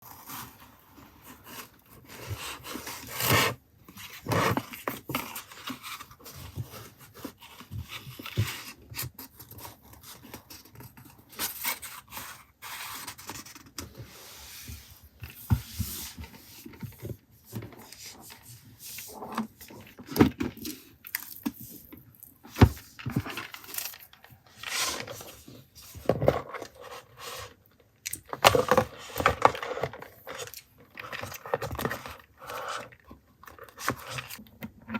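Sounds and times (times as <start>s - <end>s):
paper and packaging rustling: 14.9s - 27.6s.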